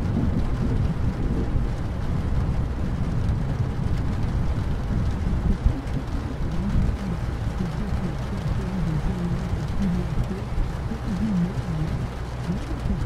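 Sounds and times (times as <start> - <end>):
heavy rain: 0.0 - 13.0
low rumble: 0.0 - 13.0.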